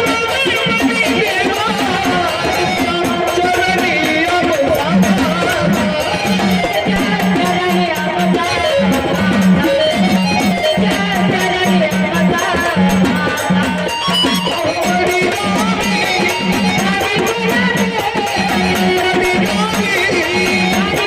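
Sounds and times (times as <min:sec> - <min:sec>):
folk music with pulsing beat: 0:00.0 - 0:21.0.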